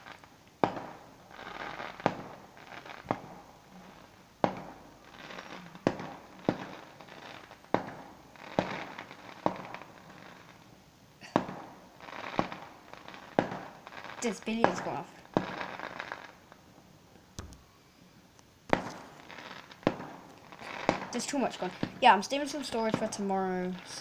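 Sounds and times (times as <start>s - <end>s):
firework bangs: 0.0s - 18.0s, 18.6s - 24.0s
firework crackling: 0.0s - 24.0s.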